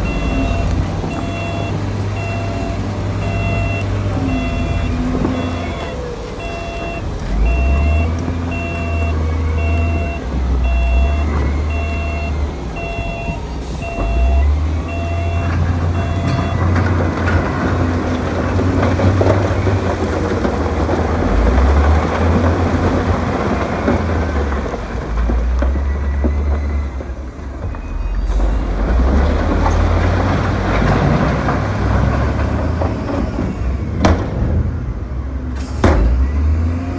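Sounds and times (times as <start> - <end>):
reversing alarm beeping: 0.0 - 18.3, 25.2 - 30.0
diesel engine rumbling: 0.0 - 36.9.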